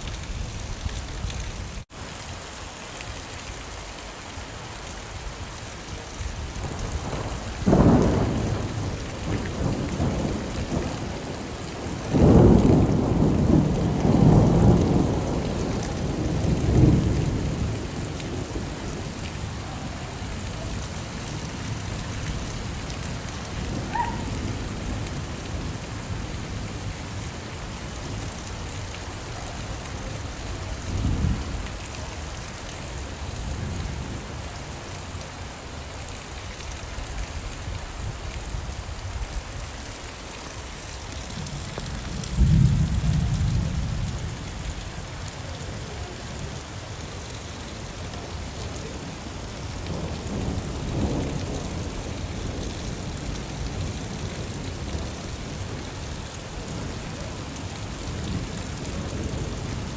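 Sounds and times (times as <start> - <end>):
steady rain: 0.0 - 59.9
thunder rumbling: 6.4 - 28.3, 41.3 - 44.6.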